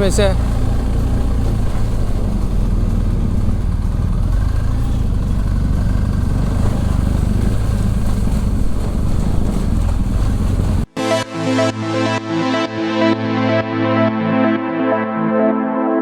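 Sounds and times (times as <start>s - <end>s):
motorcycle engine rumbling: 0.0s - 10.9s.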